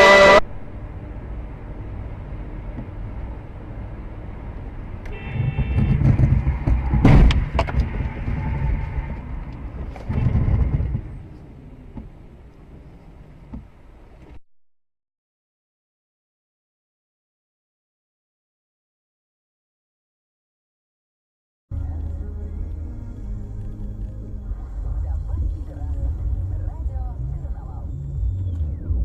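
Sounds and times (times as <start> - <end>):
brief high tone: 0.0 - 0.5
car driving rumble: 0.0 - 14.4, 21.7 - 29.0
sharp bang: 5.4 - 8.0.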